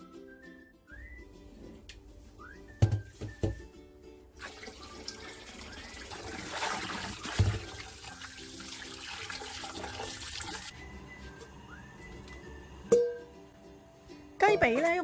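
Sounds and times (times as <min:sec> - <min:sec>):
knock: 0:02.8 - 0:03.6
tap water running into sink: 0:04.4 - 0:10.7.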